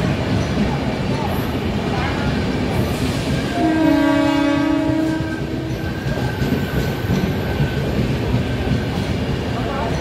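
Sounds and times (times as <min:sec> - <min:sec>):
train coaches rumbling past: 0:00.0 - 0:10.0
train horn chord: 0:03.5 - 0:05.7.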